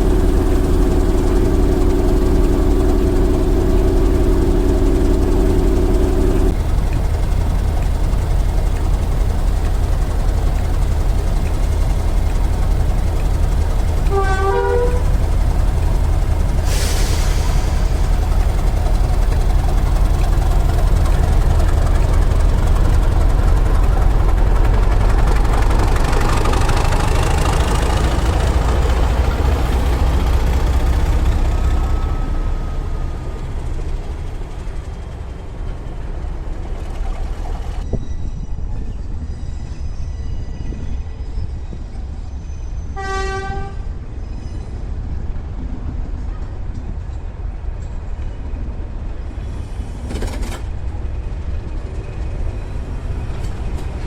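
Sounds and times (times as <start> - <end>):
train rumbling: 0.0 - 54.0
train whistle toot: 14.0 - 15.2, 42.9 - 44.0.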